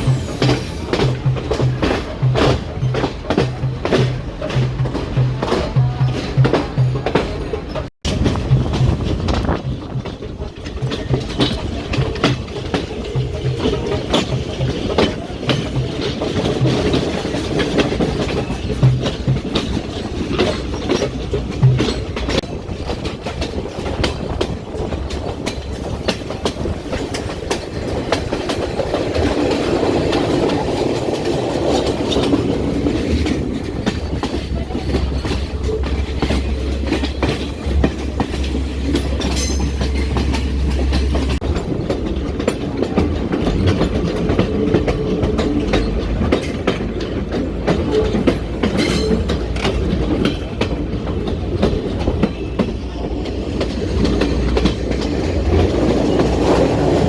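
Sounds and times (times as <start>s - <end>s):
train rumble: 0.0s - 57.0s
train wheels clicking over rail joints: 0.0s - 57.0s.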